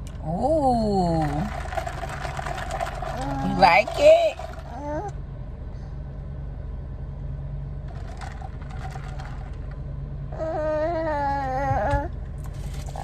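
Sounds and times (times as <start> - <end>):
steady low hum: 0.0 - 13.0
person humming: 10.4 - 12.1.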